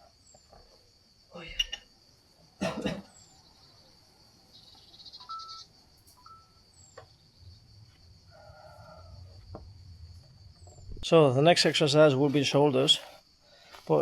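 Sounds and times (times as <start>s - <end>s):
insect drone: 0.0s - 14.0s
rapid insect trill: 0.0s - 14.0s
bird chirps: 4.5s - 7.6s.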